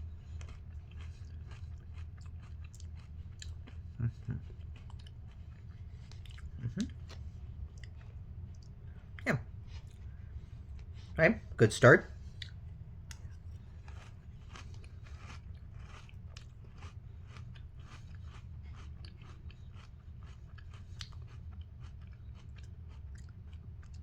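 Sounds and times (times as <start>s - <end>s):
person chewing crunchy cereal: 0.0s - 11.2s, 12.2s - 24.0s
low steady hum: 0.0s - 24.0s.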